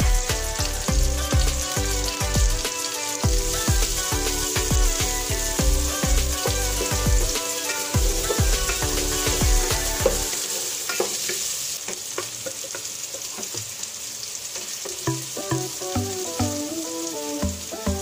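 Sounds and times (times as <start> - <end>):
background music: 0.0 - 10.8, 15.0 - 18.0
onion and garlic sizzling in oil: 0.0 - 18.0.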